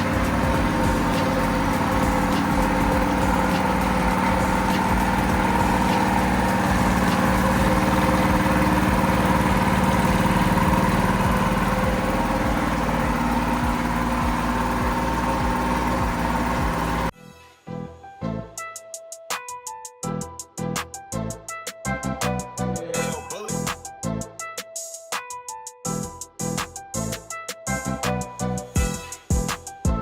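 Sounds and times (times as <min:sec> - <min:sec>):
go-kart engine running: 0:00.0 - 0:17.1.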